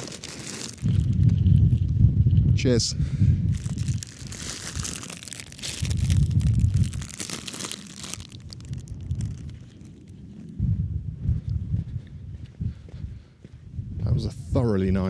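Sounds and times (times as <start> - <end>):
crinkly rustling: 0.0 - 1.9, 3.5 - 10.6
wind buffeting microphone: 0.0 - 15.0.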